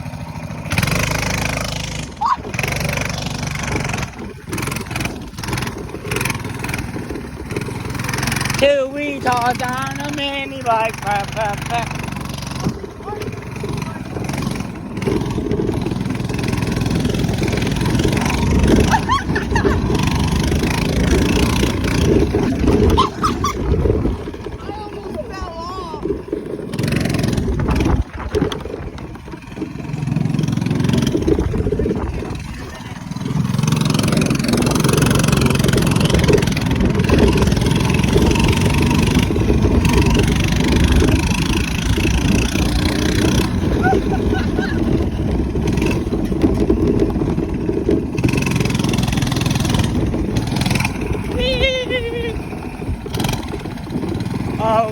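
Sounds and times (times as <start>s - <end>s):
minibike engine running: 0.0s - 54.9s.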